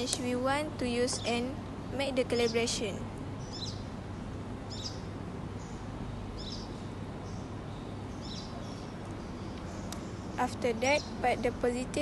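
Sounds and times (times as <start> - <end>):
steady low hum: 0.0 - 12.0
bird chirping: 0.9 - 1.5, 2.1 - 3.9, 4.6 - 11.6.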